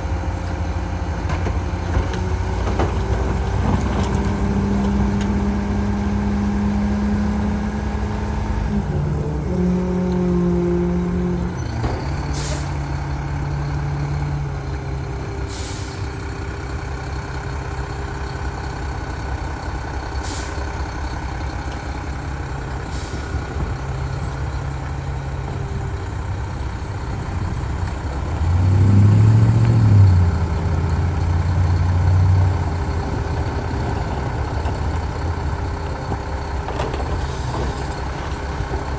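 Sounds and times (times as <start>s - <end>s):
garbage truck diesel engine: 0.0s - 38.9s
air brake hisses: 12.3s - 12.8s, 15.5s - 16.1s, 20.2s - 20.6s.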